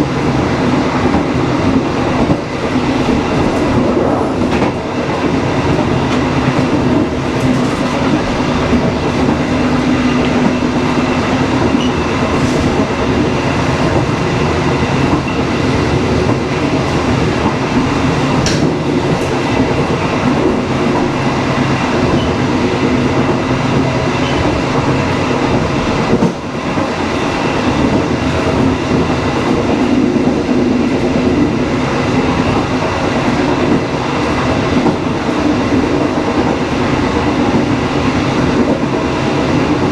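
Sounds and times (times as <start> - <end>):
train wheels rumbling: 0.0 - 39.9
faint track knocks: 4.4 - 21.1.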